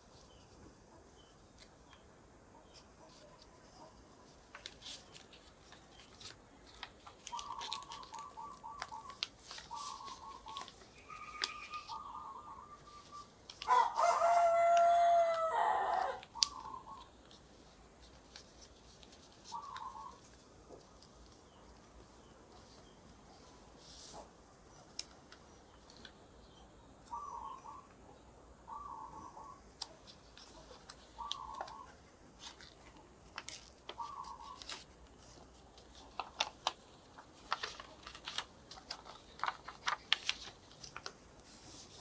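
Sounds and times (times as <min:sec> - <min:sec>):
clucking calls: 0:07.2 - 0:13.8, 0:15.3 - 0:17.2, 0:19.5 - 0:20.2, 0:27.1 - 0:32.0, 0:33.9 - 0:34.8
rooster crowing: 0:13.6 - 0:16.2.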